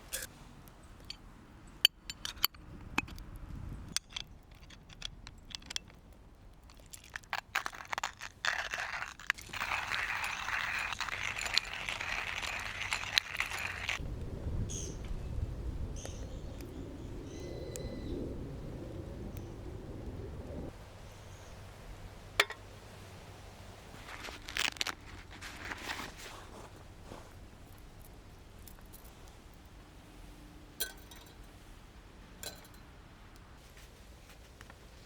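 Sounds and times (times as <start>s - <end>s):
clicks and clinks of handling: 1.8s - 3.2s, 3.9s - 9.7s, 30.8s - 31.5s, 32.4s - 32.8s
steady crunching grind: 6.7s - 14.0s.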